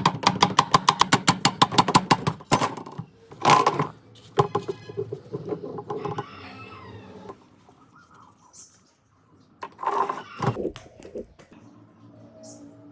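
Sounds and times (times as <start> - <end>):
rapid even clicking: 0.0 - 2.8
scattered clicks and knocks: 0.0 - 6.3.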